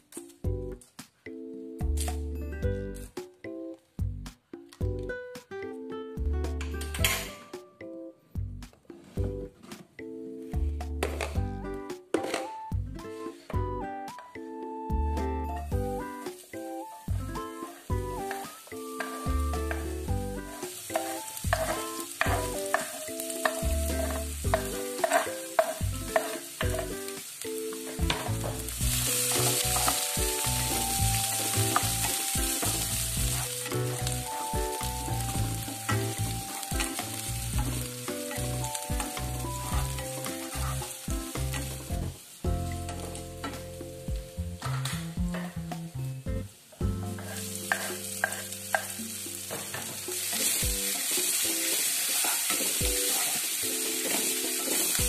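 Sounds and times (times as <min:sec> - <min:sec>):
background music: 0:00.0 - 0:55.0
shallots and garlic sizzling: 0:11.0 - 0:55.0
spatula tapping and scraping: 0:12.1 - 0:12.5, 0:18.2 - 0:27.0, 0:27.7 - 0:42.0, 0:46.9 - 0:55.0.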